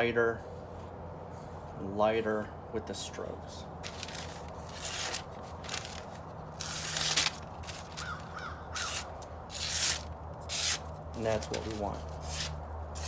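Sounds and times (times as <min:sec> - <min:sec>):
crow cawing: 0:07.8 - 0:09.2
knife sharpening strokes: 0:08.8 - 0:13.0.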